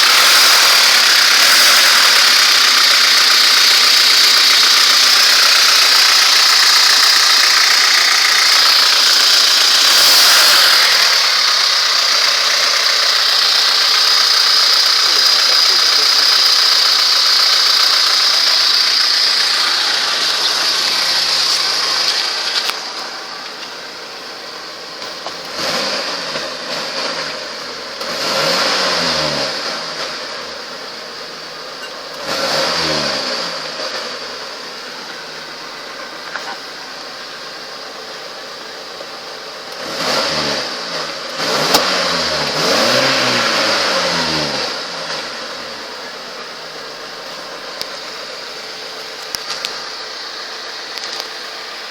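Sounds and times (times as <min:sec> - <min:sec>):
car engine revving: 0:00.0 - 0:51.9.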